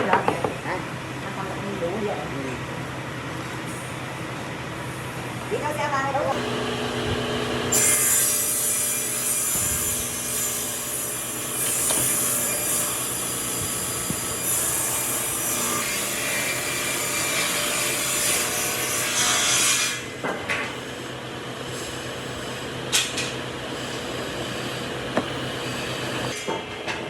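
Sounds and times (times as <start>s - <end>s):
power tool rasping wood: 6.4s - 20.0s.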